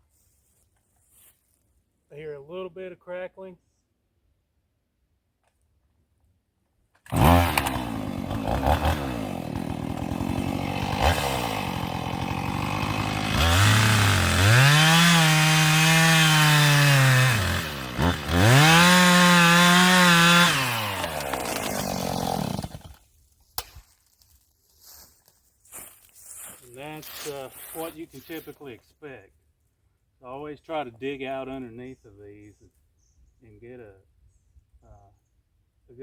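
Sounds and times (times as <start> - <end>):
chainsaw cutting wood: 7.0 - 23.8.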